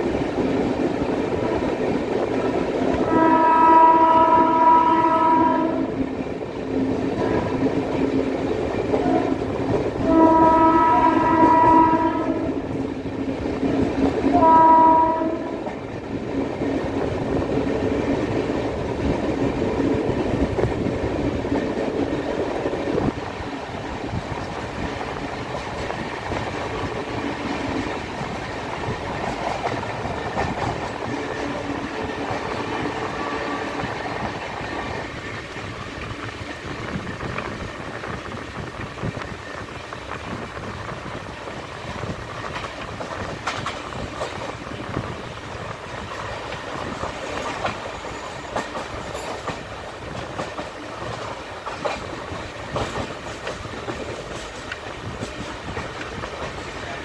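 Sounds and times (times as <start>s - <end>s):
train wheels rumbling on rails: 0.0s - 57.0s
wheels clattering over rail joints: 39.0s - 57.0s.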